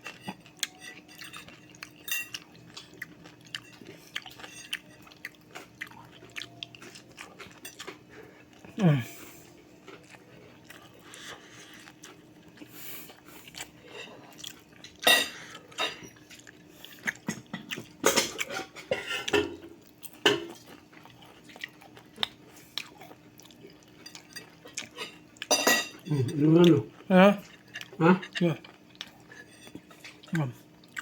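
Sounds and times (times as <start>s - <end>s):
chewing: 0.0s - 31.0s
faint steady hum: 0.0s - 31.0s
cutlery clinking on a plate: 0.1s - 2.4s, 14.9s - 16.2s, 24.0s - 26.2s.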